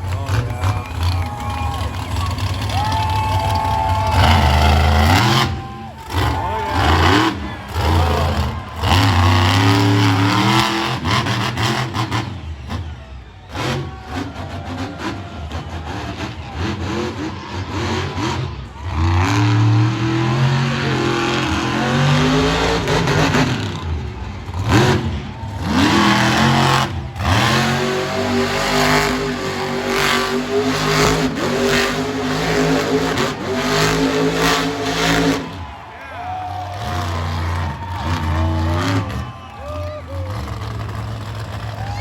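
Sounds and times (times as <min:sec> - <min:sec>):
monster truck engines revving: 0:00.0 - 0:42.0.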